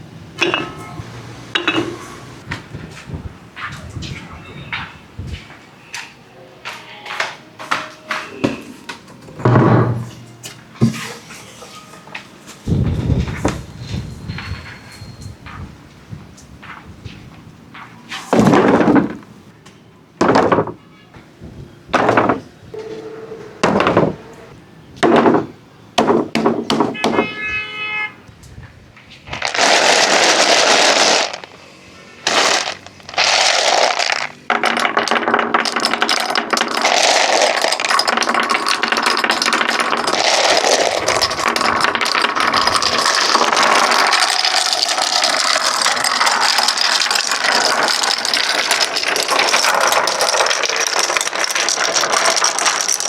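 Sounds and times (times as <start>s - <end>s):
marbles rolling on wooden track: 29.3s - 53.0s
marbles clacking on wooden run: 29.4s - 31.6s, 32.3s - 53.0s.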